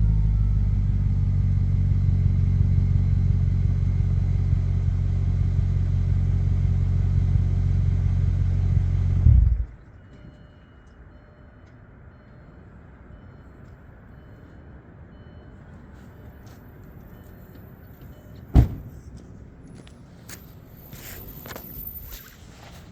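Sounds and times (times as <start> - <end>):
sharp thump: 18.5 - 19.0.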